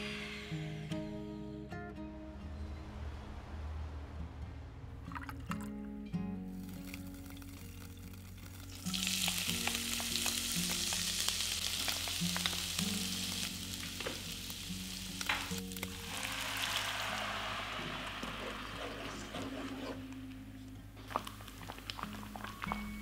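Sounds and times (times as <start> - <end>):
ginger and garlic sizzling in oil: 6.5 - 23.0.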